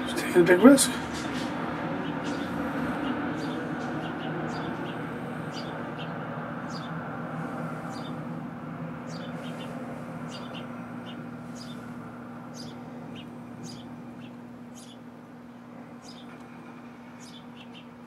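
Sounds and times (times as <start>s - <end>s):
sparrows chirping: 0.0s - 18.0s
steady low hum: 0.0s - 18.0s.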